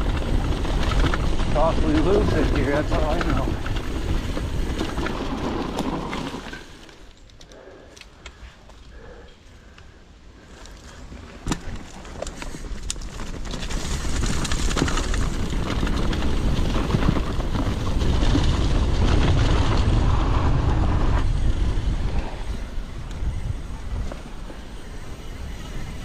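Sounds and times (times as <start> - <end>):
tyres rumbling over rough trail: 0.0 - 26.0
wind rushing over microphone: 13.9 - 26.0.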